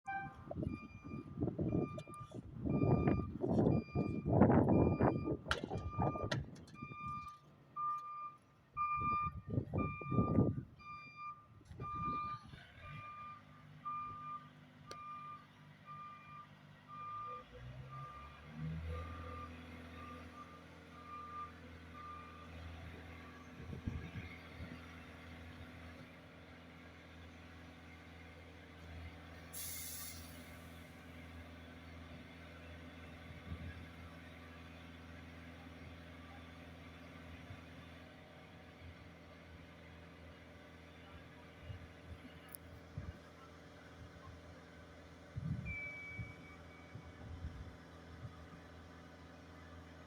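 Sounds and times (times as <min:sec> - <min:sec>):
truck reversing alarm beeping: 0:00.0 - 0:24.8, 0:45.4 - 0:47.4.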